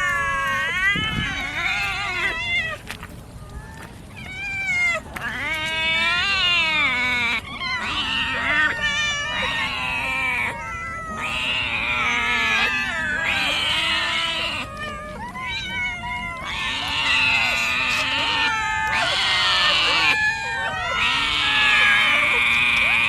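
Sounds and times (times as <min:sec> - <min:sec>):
cats meowing and yowling: 0:00.0 - 0:23.0.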